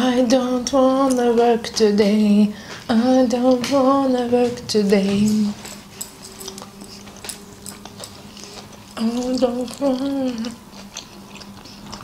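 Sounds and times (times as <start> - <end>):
woman singing wordless phrase: 0.0 - 5.7, 9.0 - 10.6
soft chewing: 4.8 - 12.0.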